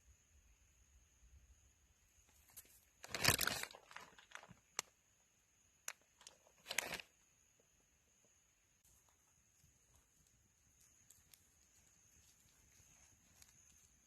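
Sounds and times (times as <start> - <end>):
rustling: 6.1 - 7.1, 8.8 - 14.0.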